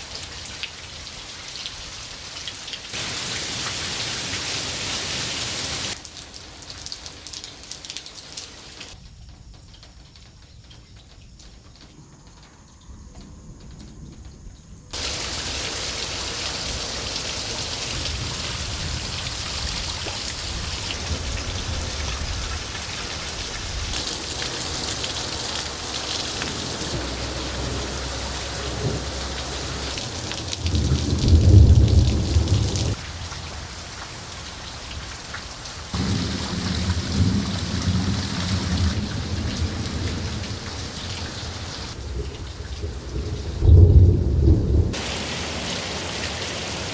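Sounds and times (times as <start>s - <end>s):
heavy rain pouring: 0.0s - 10.1s, 14.9s - 46.9s
thunder rumbling: 13.0s - 34.4s, 35.9s - 46.9s.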